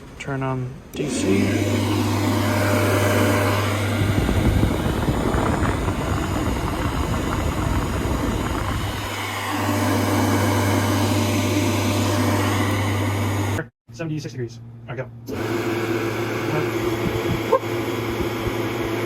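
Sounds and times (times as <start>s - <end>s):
fan humming: 0.0s - 19.0s
rough rumbling rush of air: 1.4s - 9.8s.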